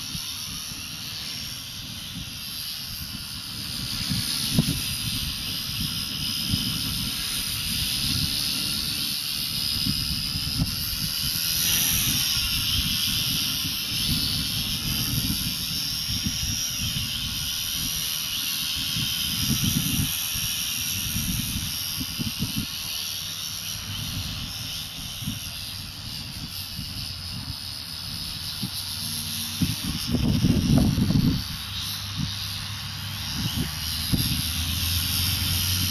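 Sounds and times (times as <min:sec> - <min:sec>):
rc helicopter motor and rotors whining: 0:00.0 - 0:35.9.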